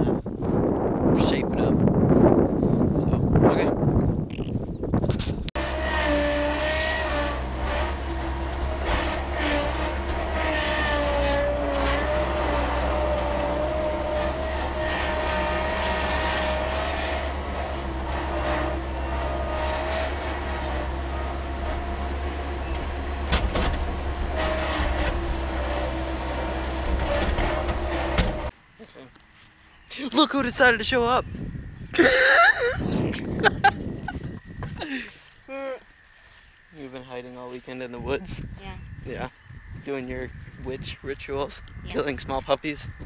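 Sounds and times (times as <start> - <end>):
skid steer engine running: 5.6 - 28.5.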